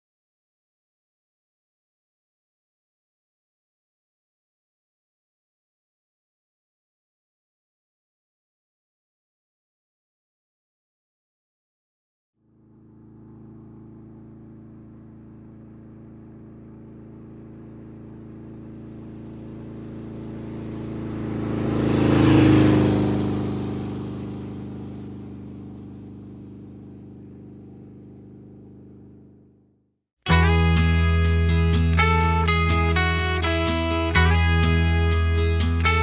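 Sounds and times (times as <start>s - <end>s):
motorcycle engine passing by: 12.4s - 36.0s.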